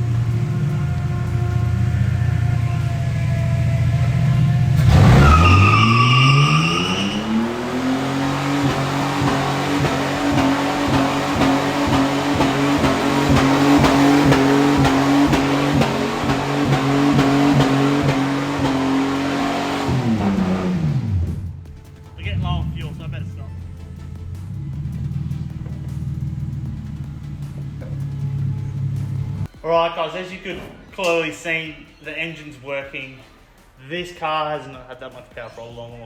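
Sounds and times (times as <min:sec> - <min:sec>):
high squeal: 0:00.0 - 0:19.9
car engine revving: 0:00.0 - 0:29.5
tyres skidding: 0:00.0 - 0:29.5.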